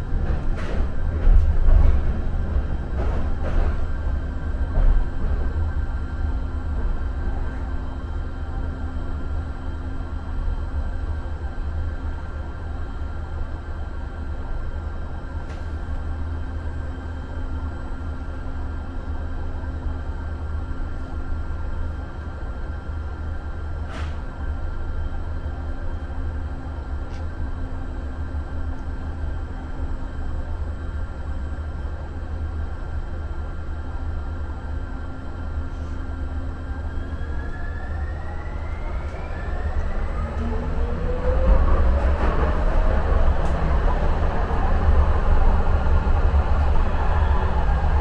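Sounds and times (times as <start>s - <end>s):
train car low rumble: 0.0s - 48.0s
train whine rising in pitch: 36.3s - 48.0s.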